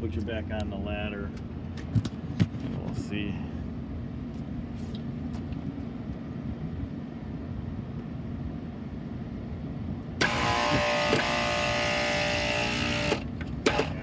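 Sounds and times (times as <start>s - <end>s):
hvac unit rumble: 0.0s - 14.0s
loud machine whining tones: 10.2s - 14.0s.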